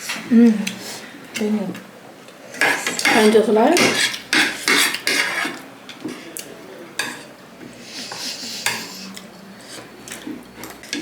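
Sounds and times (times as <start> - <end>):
cutlery and dishes clinking: 2.6 - 6.3, 7.0 - 7.3, 8.0 - 11.0.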